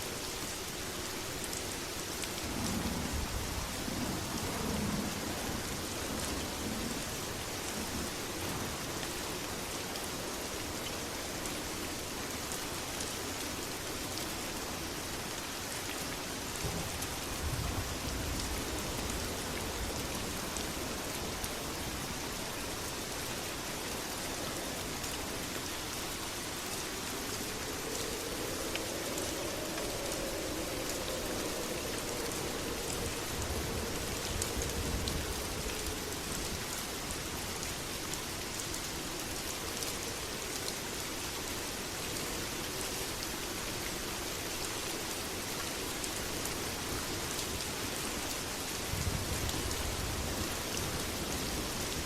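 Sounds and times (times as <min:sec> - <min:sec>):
heavy rain falling: 0:00.0 - 0:52.0
low rumbles: 0:26.2 - 0:36.9.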